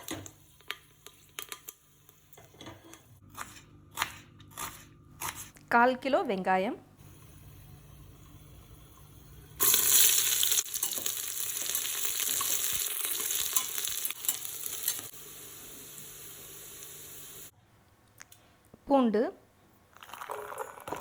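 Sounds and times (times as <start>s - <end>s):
onions sizzling in hot oil: 7.0s - 17.5s.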